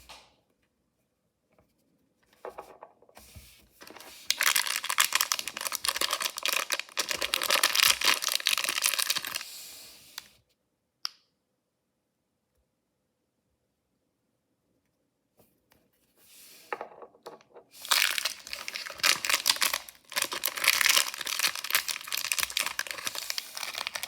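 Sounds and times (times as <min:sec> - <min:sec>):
packaging torn and crinkled: 0:03.8 - 0:09.4, 0:17.8 - 0:24.0.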